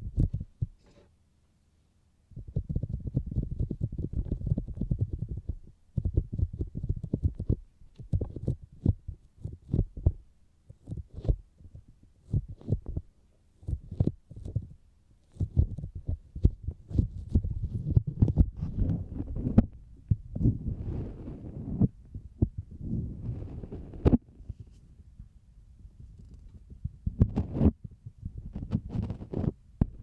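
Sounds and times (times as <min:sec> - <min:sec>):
fingers tapping on microphone: 0:02.4 - 0:20.6, 0:26.0 - 0:30.0.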